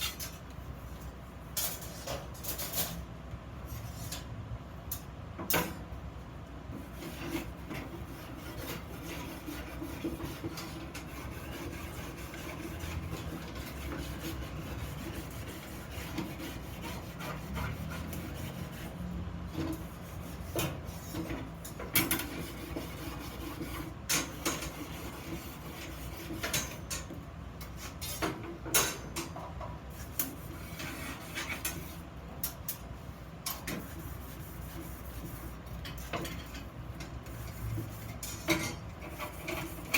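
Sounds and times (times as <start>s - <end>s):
hand rubbing and scraping iron: 29.9s - 39.9s.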